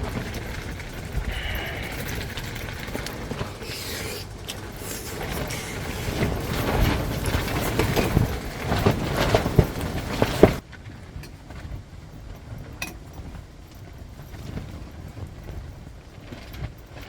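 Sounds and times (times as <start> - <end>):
sharp knocks and rattles: 0.0 - 13.4
wind rumbling on microphone: 0.0 - 17.0.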